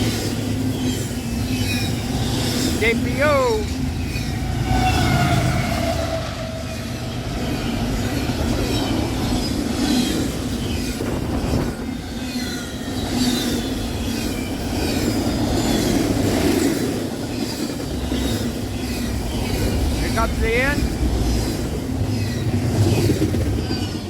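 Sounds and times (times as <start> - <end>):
train wheels clattering over rail joints: 6.8 - 24.0.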